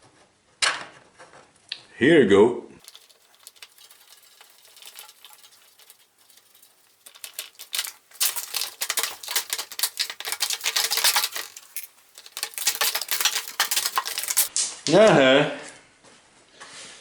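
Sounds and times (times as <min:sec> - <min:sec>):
metal tools clicking and clattering: 0:02.8 - 0:14.5.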